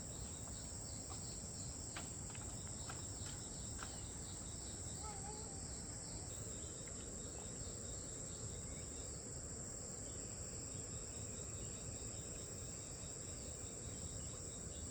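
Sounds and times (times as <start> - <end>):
insects chirring: 0.0 - 14.9.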